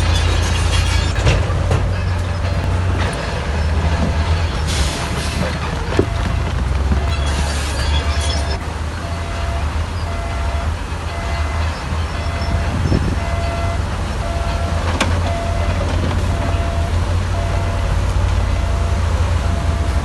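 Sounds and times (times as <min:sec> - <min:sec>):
heavy diesel machinery rumbling: 0:00.0 - 0:20.0
faint repeating beep: 0:06.0 - 0:14.7.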